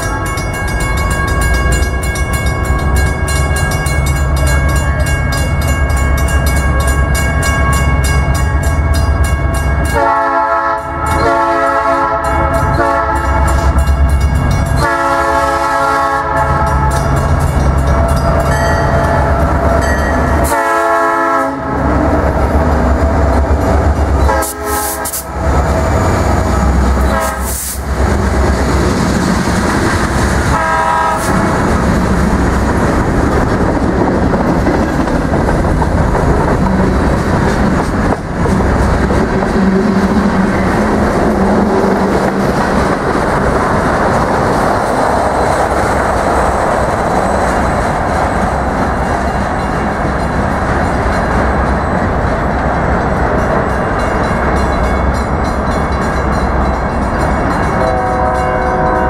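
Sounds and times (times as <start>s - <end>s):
train horn blasts: 0.0s - 1.8s, 9.8s - 13.8s, 14.8s - 17.1s, 19.9s - 22.0s, 24.2s - 25.5s, 26.1s - 27.8s, 30.4s - 31.7s, 57.7s - 59.0s
crossing bell ringing rapidly: 0.0s - 20.6s, 21.8s - 29.9s, 43.1s - 59.0s
diesel locomotives rumbling: 0.0s - 59.0s.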